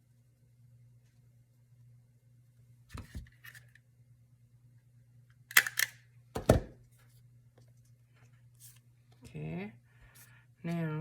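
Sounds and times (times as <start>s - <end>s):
stapler clacking shut: 5.5s - 6.6s.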